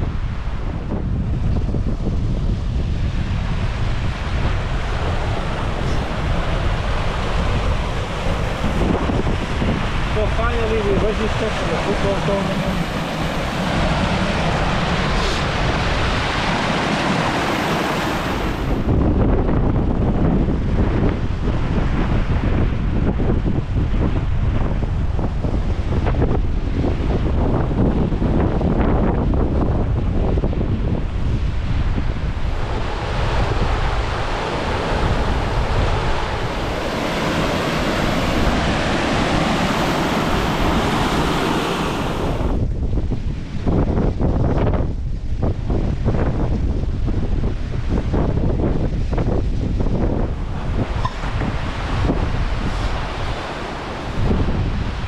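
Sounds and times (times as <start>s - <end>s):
strong wind on microphone: 0.0s - 55.0s.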